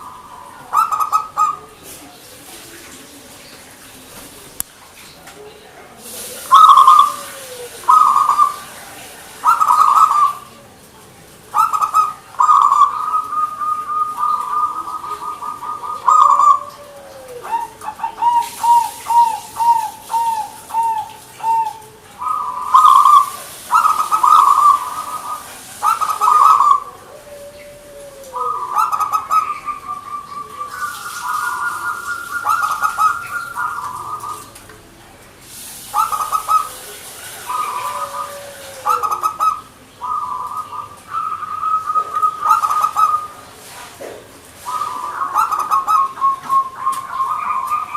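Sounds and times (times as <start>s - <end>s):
dove cooing: 0.0s - 3.4s, 5.4s - 10.8s, 11.4s - 34.8s, 35.5s - 47.9s.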